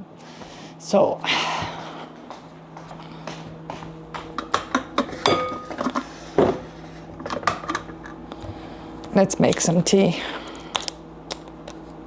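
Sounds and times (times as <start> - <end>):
cup ringing when struck: 4.4 - 5.8
dishes and cutlery clattering: 4.4 - 5.9.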